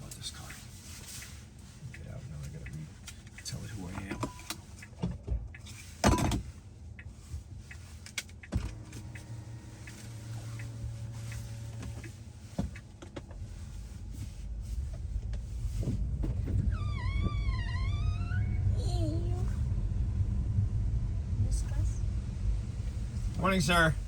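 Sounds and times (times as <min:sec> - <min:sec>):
low steady hum: 0:08.6 - 0:24.0
low rumble: 0:13.4 - 0:24.0.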